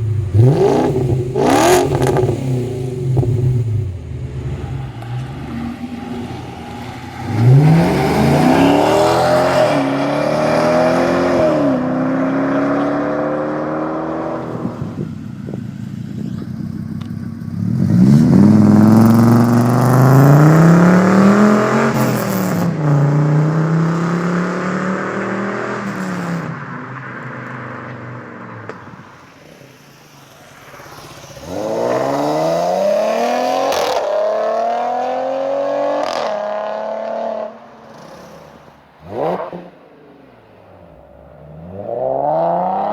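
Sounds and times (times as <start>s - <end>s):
car engine accelerating hard: 0.0s - 15.0s, 16.2s - 26.7s.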